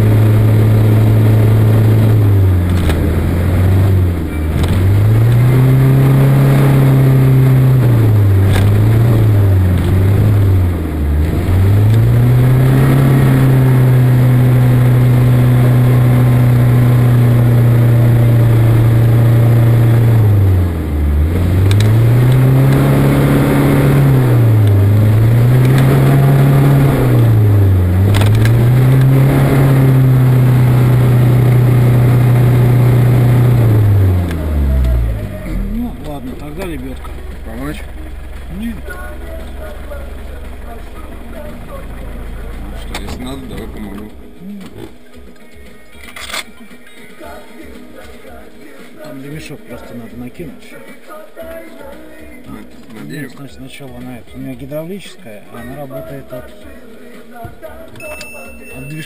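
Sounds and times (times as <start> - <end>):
engine revving high: 0.0 - 45.1.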